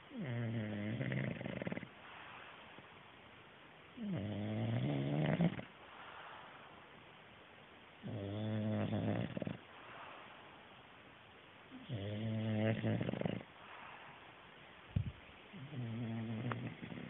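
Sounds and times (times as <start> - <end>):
dog snoring: 0.1 - 2.4, 4.0 - 5.8, 8.0 - 10.2, 11.7 - 14.0, 15.5 - 17.0.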